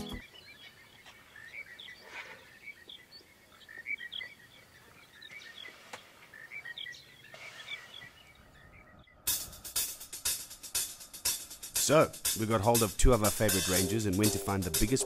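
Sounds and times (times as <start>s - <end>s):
faint bird chirping: 0.0s - 9.8s
outdoor background hiss: 0.0s - 15.0s.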